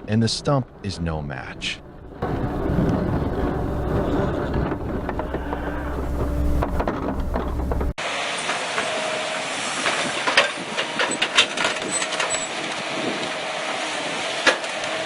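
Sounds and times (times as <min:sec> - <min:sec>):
wood and metal cracks: 0:02.2 - 0:08.9, 0:09.8 - 0:13.8, 0:14.4 - 0:15.0
excavator engine and hydraulic hiss: 0:07.6 - 0:15.0.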